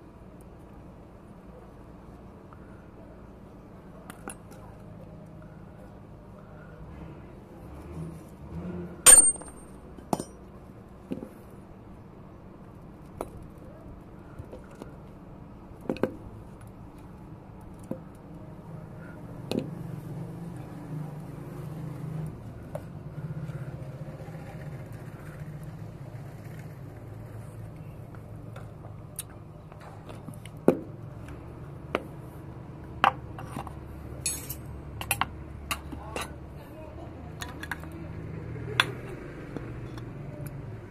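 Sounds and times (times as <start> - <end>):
metal tools clinking: 9.1 - 10.3, 34.2 - 34.6.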